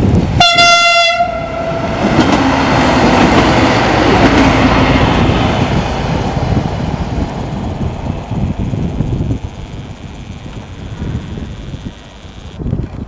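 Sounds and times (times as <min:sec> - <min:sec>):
train passing with rumble: 0:00.0 - 0:13.0
train horn blast: 0:00.4 - 0:02.2.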